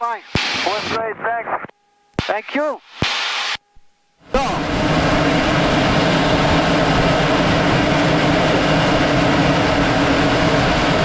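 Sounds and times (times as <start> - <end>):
aircraft engine drone: 4.2 - 11.0.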